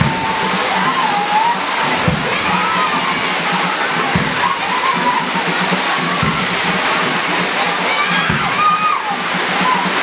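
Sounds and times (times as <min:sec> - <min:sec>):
dull low thumps: 0:00.0 - 0:00.7, 0:01.9 - 0:03.4, 0:04.0 - 0:04.8, 0:06.1 - 0:07.0, 0:08.3 - 0:08.8
faint voices: 0:00.0 - 0:10.0
heavy rain pouring: 0:00.0 - 0:10.0.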